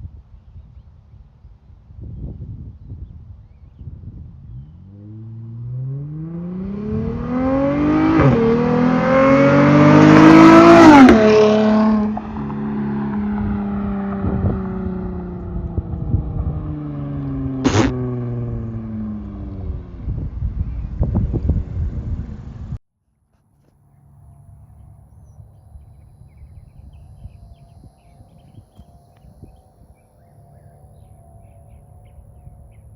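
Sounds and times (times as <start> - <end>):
car engine accelerating hard: 4.5 - 22.8
sharp click: 17.7 - 18.0.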